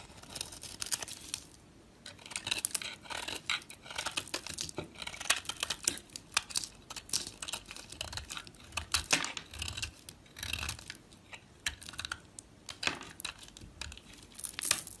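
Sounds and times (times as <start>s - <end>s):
knife cutting dry soap: 0.0s - 15.0s.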